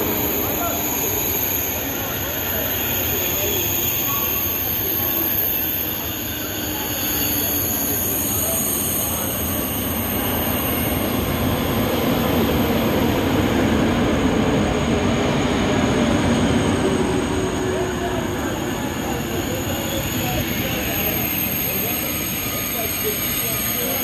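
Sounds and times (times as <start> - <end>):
high wheel squeal: 0.0 - 10.5
train wheels rumbling on rails: 0.0 - 24.0.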